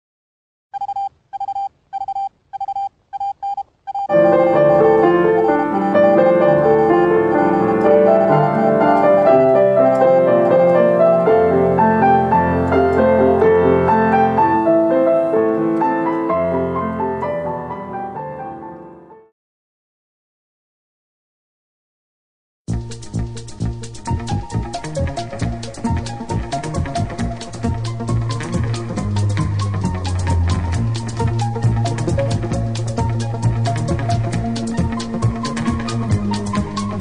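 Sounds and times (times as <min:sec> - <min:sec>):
short electronic beeps: 0:00.8 - 0:09.2
piano music: 0:04.1 - 0:19.3, 0:22.7 - 0:37.0.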